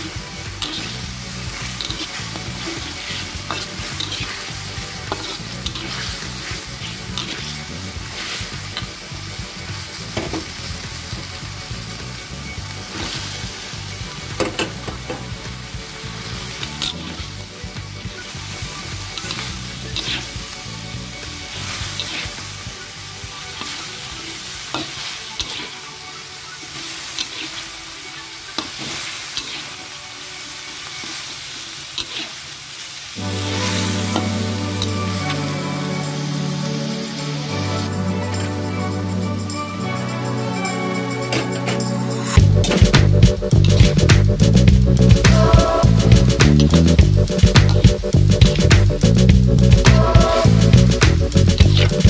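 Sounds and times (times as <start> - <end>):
metal spatula scraping a wok: 0.0 - 8.9, 19.2 - 20.4, 22.0 - 22.4, 27.1 - 27.8, 28.5 - 29.8, 32.0 - 32.4
music: 0.0 - 32.0, 33.1 - 52.0
food sizzling in a wok: 0.0 - 52.0.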